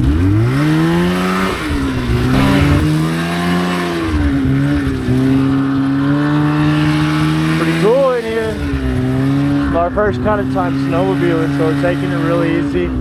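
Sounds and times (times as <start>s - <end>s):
snowmobile engine revving: 2.3s - 3.0s.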